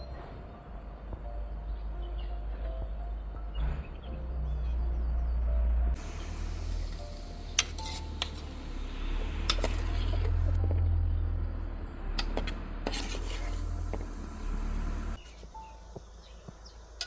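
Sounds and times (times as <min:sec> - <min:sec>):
low steady rumble: 0:04.2 - 0:15.2.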